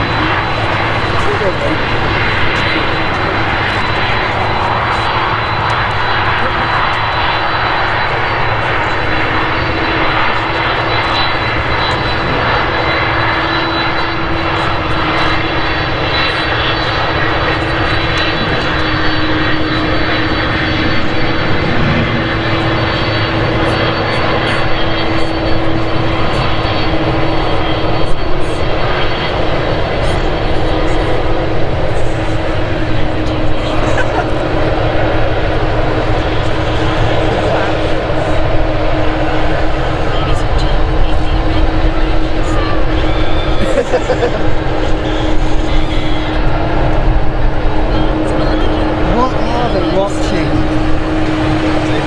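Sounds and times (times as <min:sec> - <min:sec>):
jet engines at takeoff: 0:00.0 - 0:52.0.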